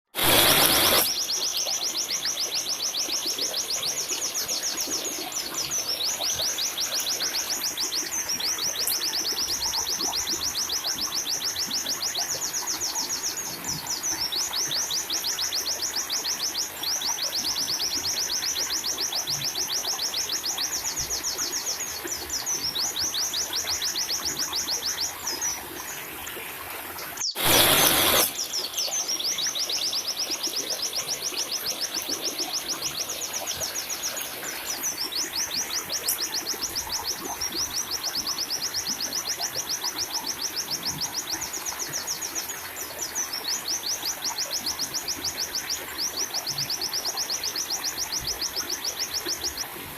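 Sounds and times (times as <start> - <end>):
short loud burst of noise: 0.2 - 1.1, 27.4 - 28.4
steady hiss: 0.2 - 1.2, 27.4 - 28.7.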